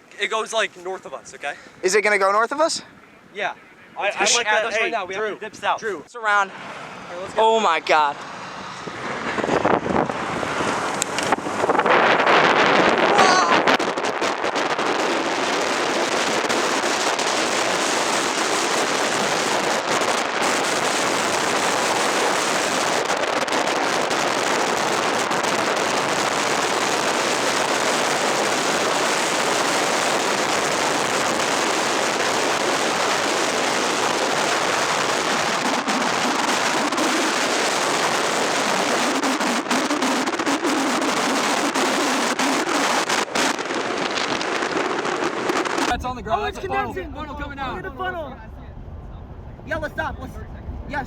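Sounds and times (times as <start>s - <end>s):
crackling hiss from moving vehicle: 6.6s - 46.0s.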